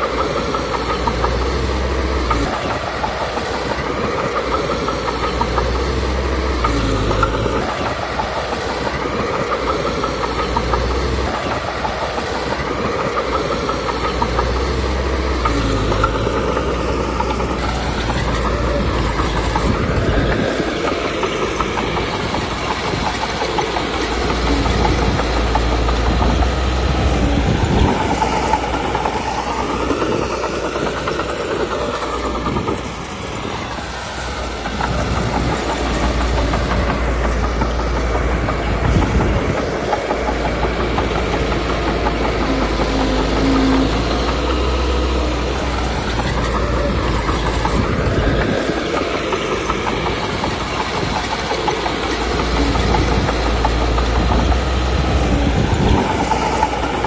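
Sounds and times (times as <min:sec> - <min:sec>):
bulldozer tracks clattering: 0:00.0 - 0:57.0
diesel engine under load: 0:00.0 - 0:57.0.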